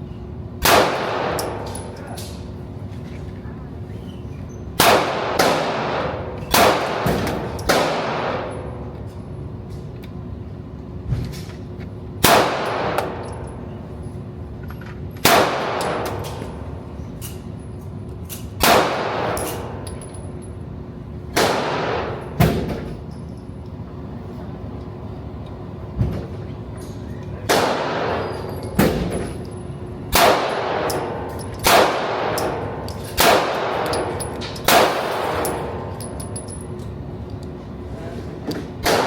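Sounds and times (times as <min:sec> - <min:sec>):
gunshots with echo: 0:30.1 - 0:35.8.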